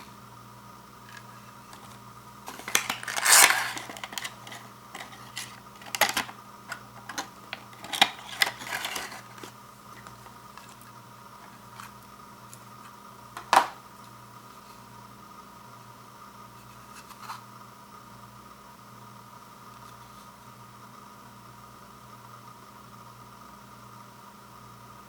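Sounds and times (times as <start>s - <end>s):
faint hum: 0.0s - 25.0s
packaging clicks: 1.1s - 10.8s
plastic packaging crinkling: 1.1s - 11.9s.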